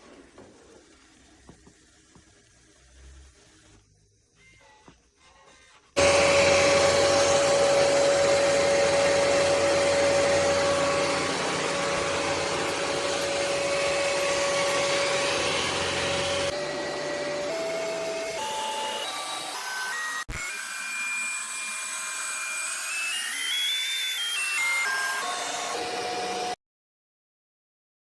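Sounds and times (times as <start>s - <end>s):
robot vacuum running: 0.0s - 26.6s.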